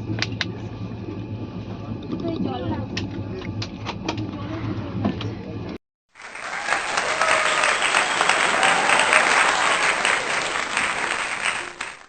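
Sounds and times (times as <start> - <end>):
crowd applauding: 6.1 - 12.0.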